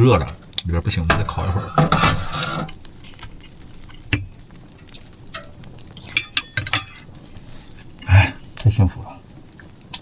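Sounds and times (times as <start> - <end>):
utensils clinking on a dish: 6.0 - 7.1.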